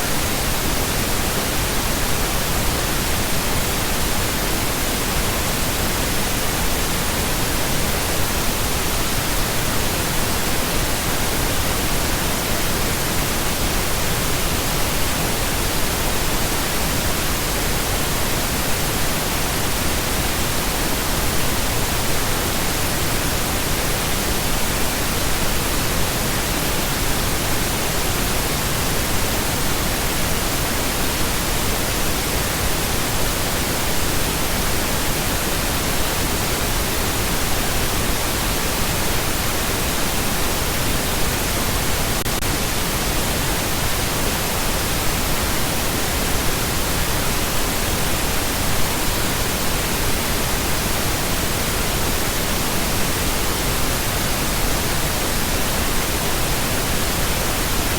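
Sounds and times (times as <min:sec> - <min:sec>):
pink noise hiss: 0:00.0 - 0:57.9.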